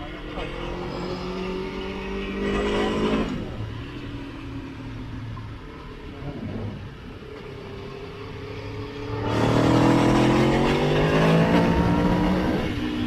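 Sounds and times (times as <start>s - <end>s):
motorcycle engine accelerating: 8.8s - 13.0s.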